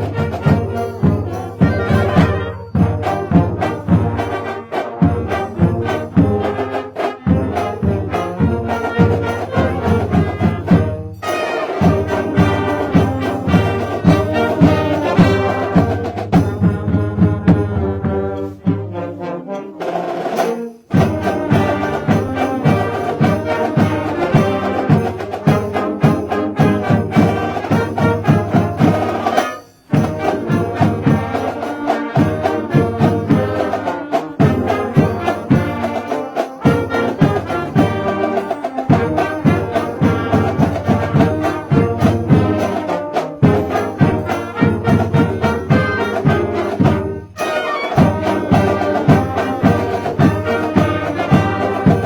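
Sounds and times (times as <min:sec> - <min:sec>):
brass melody: 0:00.0 - 0:52.0
drums beating steadily: 0:00.0 - 0:52.0
marching band playing: 0:00.0 - 0:52.0.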